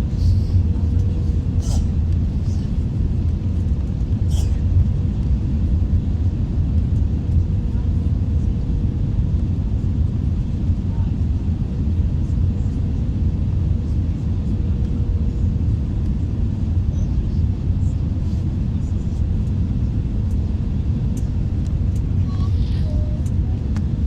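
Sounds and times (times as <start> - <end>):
aircraft engine and airflow rumble: 0.0 - 24.0.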